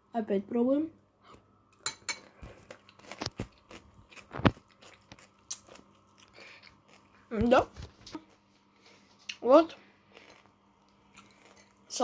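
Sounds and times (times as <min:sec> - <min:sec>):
chewing crunchy food: 0:02.2 - 0:08.5, 0:10.1 - 0:11.9.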